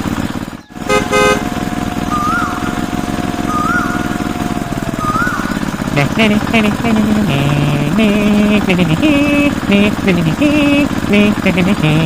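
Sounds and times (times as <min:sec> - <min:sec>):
small engine chugging: 0:00.0 - 0:12.0
high sweeping chirp: 0:00.6 - 0:07.7.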